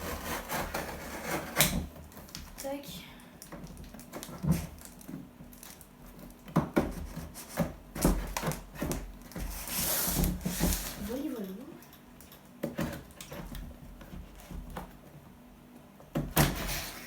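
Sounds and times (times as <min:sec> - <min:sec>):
packaging scraping and tearing: 0:00.0 - 0:02.6, 0:07.0 - 0:11.2.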